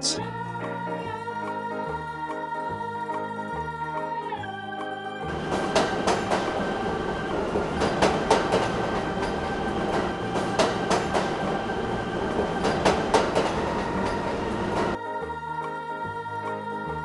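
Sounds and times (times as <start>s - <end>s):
train rumbling: 5.3s - 15.0s
wheels clacking over rail joints: 5.3s - 15.0s.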